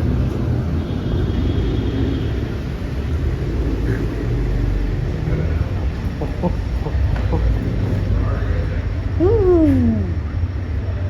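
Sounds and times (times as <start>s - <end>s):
car engine rumbling: 2.1s - 10.9s.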